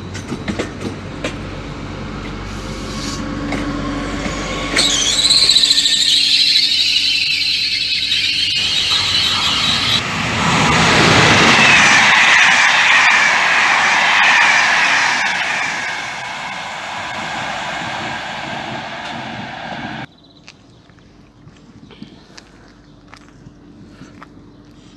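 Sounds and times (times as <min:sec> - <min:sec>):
passenger coaches rumbling past: 0:00.0 - 0:20.1
high-pitched wheel squeal: 0:03.9 - 0:20.1
low squeal falling in pitch: 0:04.1 - 0:20.1.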